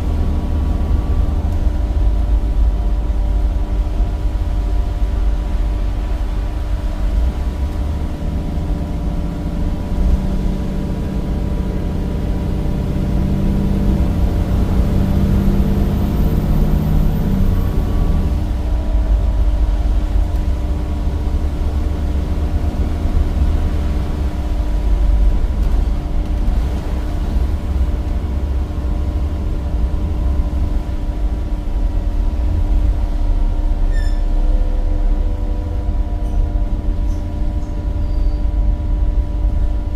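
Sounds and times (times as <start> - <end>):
bus diesel engine: 0.0 - 39.9
road rumble: 0.0 - 39.9
faint high whistle: 33.9 - 34.3, 38.0 - 38.4.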